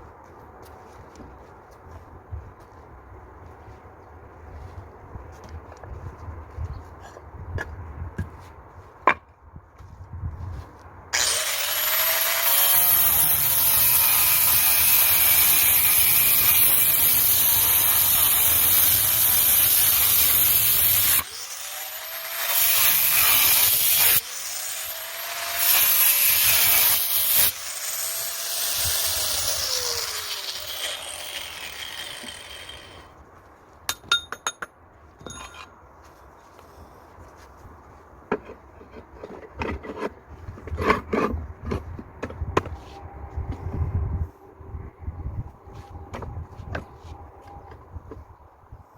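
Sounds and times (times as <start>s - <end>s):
power tool cutting: 11.2s - 33.1s.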